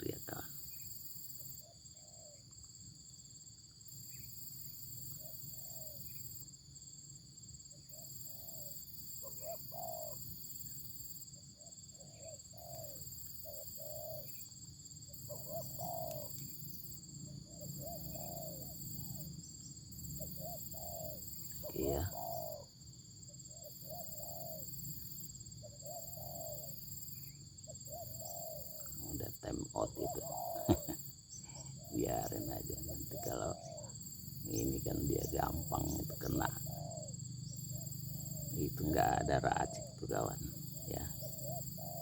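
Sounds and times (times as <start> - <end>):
doves cooing: 0.0 - 0.6, 7.9 - 10.6, 11.6 - 14.5, 15.1 - 19.3, 20.0 - 22.7, 23.5 - 42.0.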